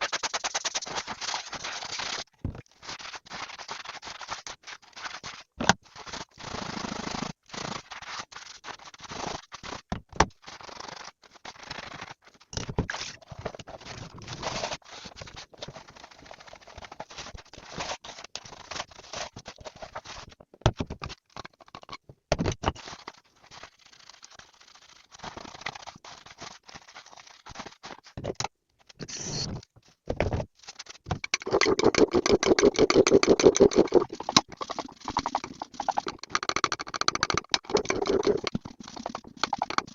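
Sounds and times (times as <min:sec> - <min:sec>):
rapid rhythmic scrubbing: 0:31.2 - 0:39.9.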